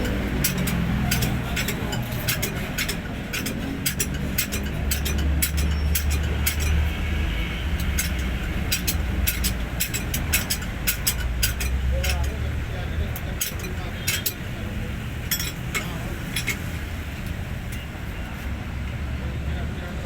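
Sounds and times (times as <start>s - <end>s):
sharp metallic clicks: 0.0s - 7.0s, 7.6s - 14.6s
truck diesel engine running: 0.0s - 17.3s.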